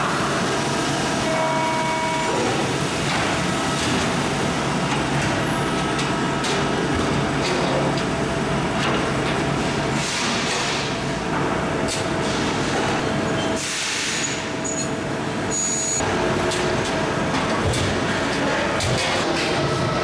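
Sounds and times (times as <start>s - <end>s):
brief tones: 15.5s - 16.0s.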